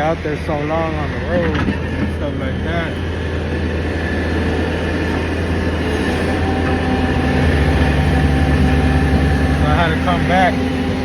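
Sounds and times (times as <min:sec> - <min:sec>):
diesel truck engine droning: 0:00.0 - 0:11.0
higher steady tone: 0:02.1 - 0:11.0.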